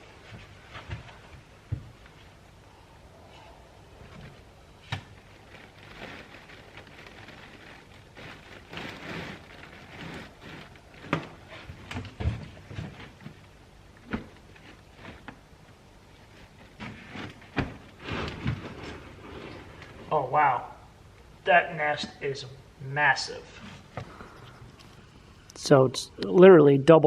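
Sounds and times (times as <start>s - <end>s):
papery nest rustling and tearing: 4.2s - 13.4s.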